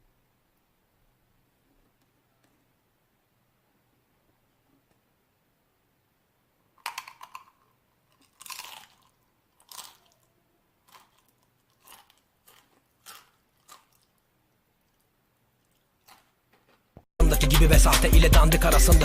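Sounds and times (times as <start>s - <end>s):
crisps crunching: 6.8s - 16.9s.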